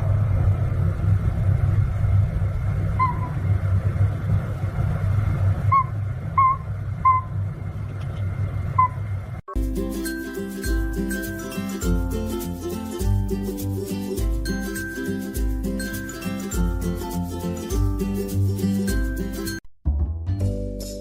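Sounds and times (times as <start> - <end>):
steady low rumble: 0.0 - 9.9.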